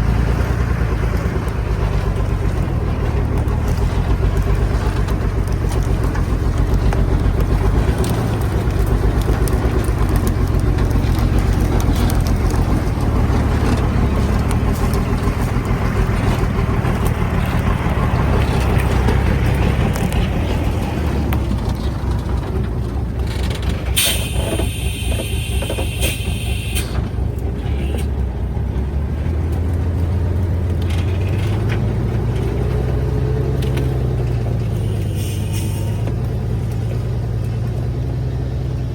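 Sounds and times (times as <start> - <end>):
truck engine rumbling: 0.0 - 38.9
high-pitched squeal: 24.0 - 27.0.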